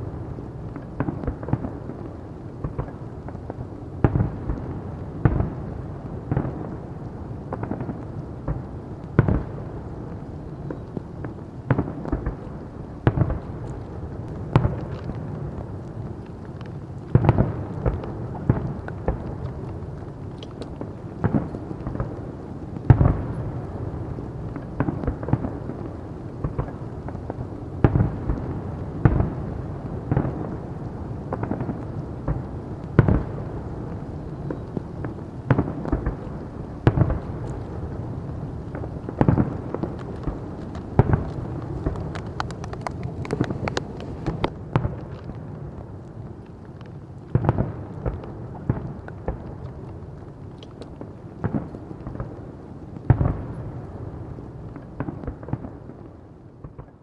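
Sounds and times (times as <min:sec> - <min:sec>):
rumble of echoing detonations: 0:00.0 - 0:50.4
firework crackles: 0:00.0 - 0:56.9
firework shells bursting with bangs: 0:31.3 - 0:45.0.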